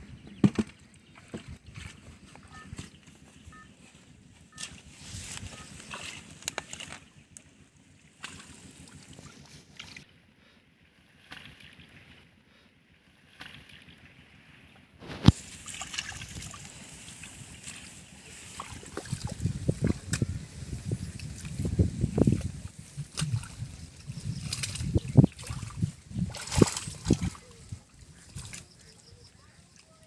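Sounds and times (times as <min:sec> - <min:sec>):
water sloshing and splashing: 0:04.5 - 0:10.1, 0:11.0 - 0:12.3, 0:13.0 - 0:29.1.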